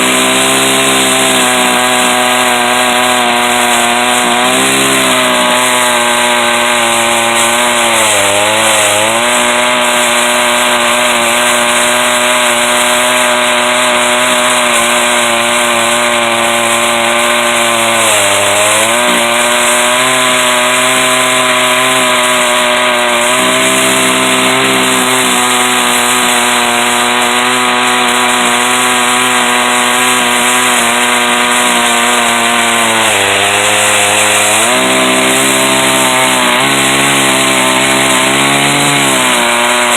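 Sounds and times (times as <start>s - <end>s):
chainsaw cutting a log: 0.0s - 39.9s.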